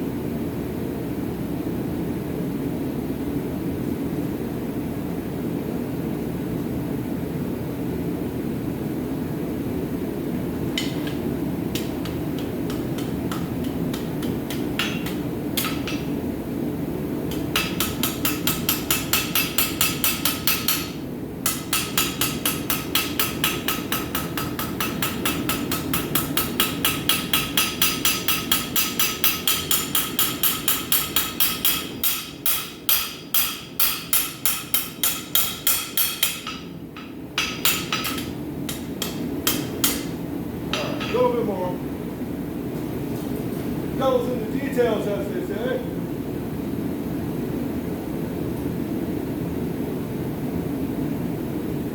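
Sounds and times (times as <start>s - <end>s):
hammer ringing on anvil: 17.6s - 41.2s.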